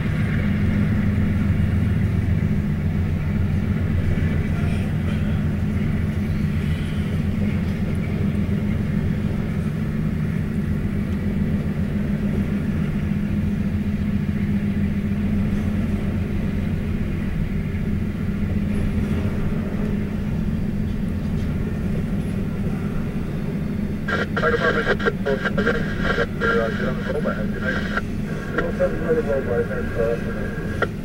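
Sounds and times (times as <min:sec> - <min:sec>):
freight train rolling past: 0:00.0 - 0:24.1.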